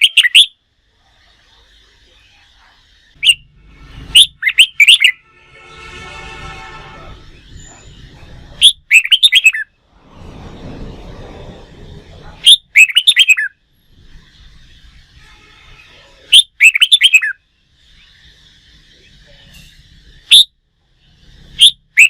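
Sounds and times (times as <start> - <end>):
bulbul chirping song: 0.0 - 0.8, 1.7 - 5.4, 7.2 - 9.8, 12.4 - 22.0.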